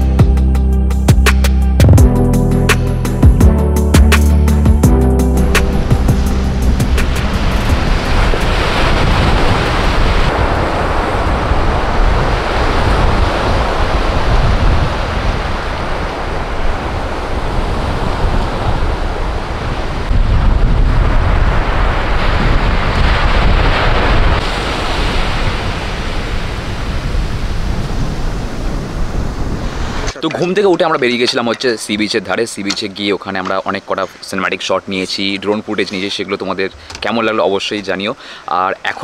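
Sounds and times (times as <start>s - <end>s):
wind buffeting microphone: 4.8s - 32.1s
sea surf washing on beach: 5.4s - 39.0s.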